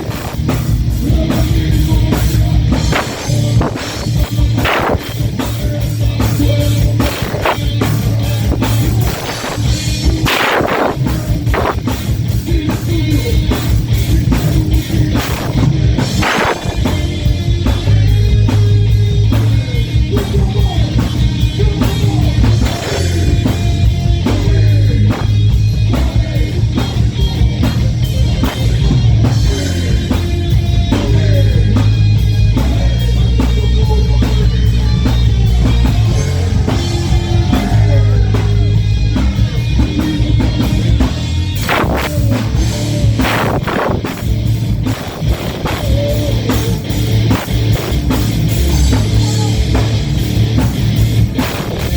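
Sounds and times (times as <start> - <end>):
rock band playing live: 0.0 - 51.9
heavy accented drum hits: 35.3 - 39.6.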